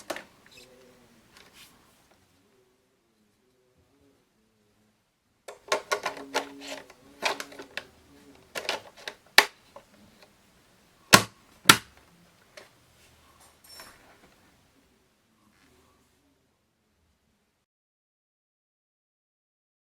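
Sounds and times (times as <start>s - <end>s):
hard plastic parts clattering: 5.5s - 9.9s.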